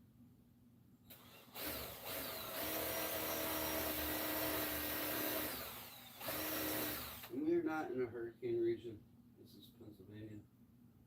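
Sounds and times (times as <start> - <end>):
power drill boring into wood: 1.1 - 7.4.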